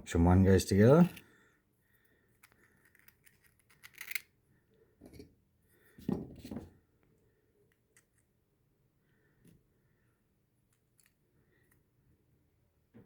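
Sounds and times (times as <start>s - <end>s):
plastic parts clicking and scraping: 2.3s - 4.3s.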